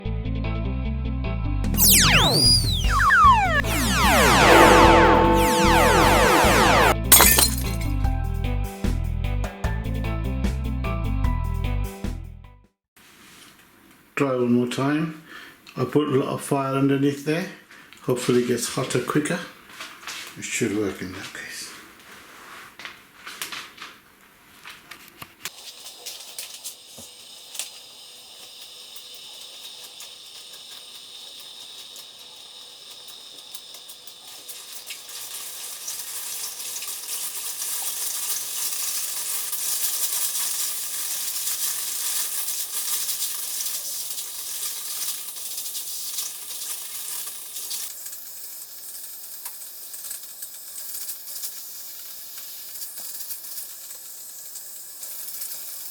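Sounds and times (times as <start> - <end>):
steam hissing and sizzling: 25.7 - 55.9.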